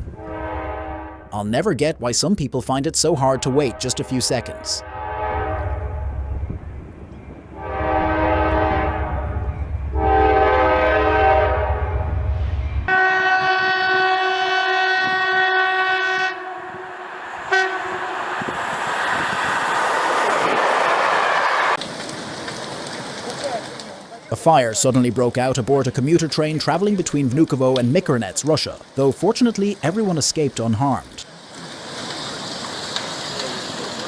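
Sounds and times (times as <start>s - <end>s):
locomotive horn blasts: 0.1s - 1.3s, 3.2s - 6.3s, 7.5s - 12.3s, 12.9s - 18.4s
loud steady rushing noise: 16.4s - 23.8s.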